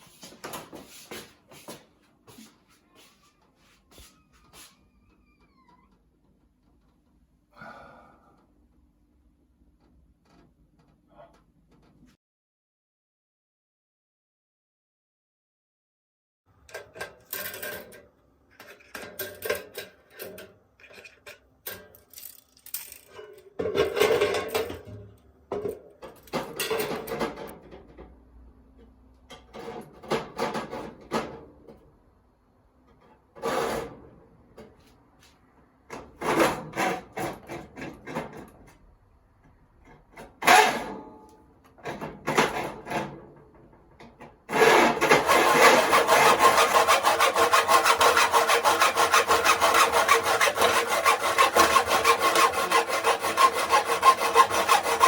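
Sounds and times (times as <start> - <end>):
tools clattering: 18.6 - 25.0
continuous sawing: 44.5 - 55.0.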